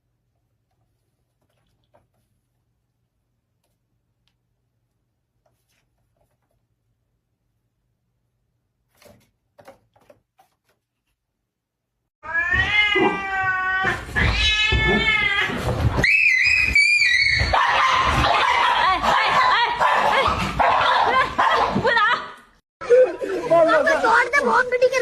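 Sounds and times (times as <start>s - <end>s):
cat yowling: 12.2s - 17.8s.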